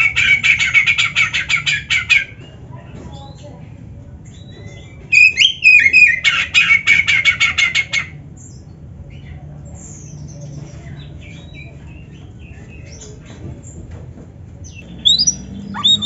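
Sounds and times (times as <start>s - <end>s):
magpie-robin singing: 4.2s - 13.3s, 14.6s - 16.0s
faint bird chirps: 14.7s - 16.0s.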